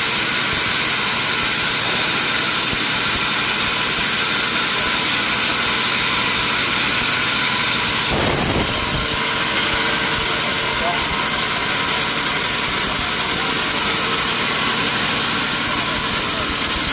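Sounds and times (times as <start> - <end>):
sawmill machinery hissing: 0.0 - 16.9
constant hum: 7.8 - 16.9.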